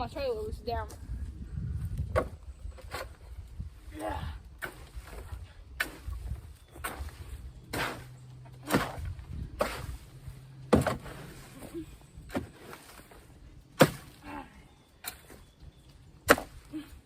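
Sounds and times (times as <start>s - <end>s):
rake scraping wood chips: 4.5s - 14.2s.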